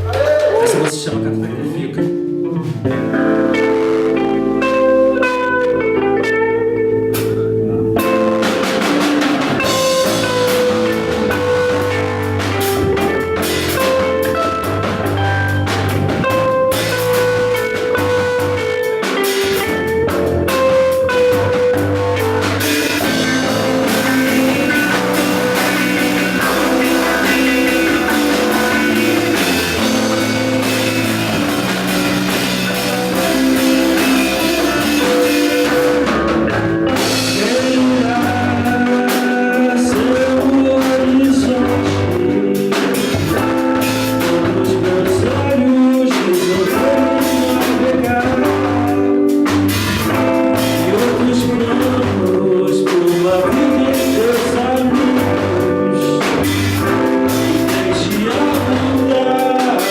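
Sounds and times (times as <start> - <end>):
bass guitar: 0.0 - 59.9
drum kit: 0.0 - 59.9
electric guitar: 0.0 - 59.9
person singing: 0.0 - 59.9.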